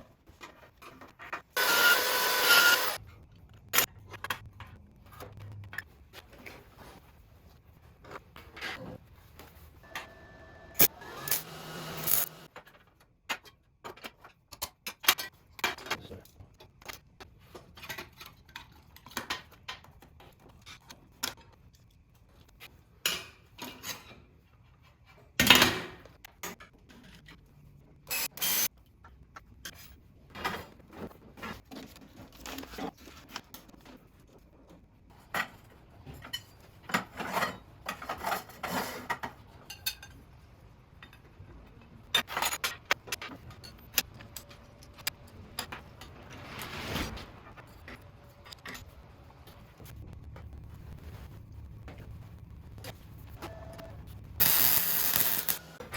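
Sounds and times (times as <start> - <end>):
metal parts and tools clinking: 10.8 - 12.5, 54.4 - 55.8.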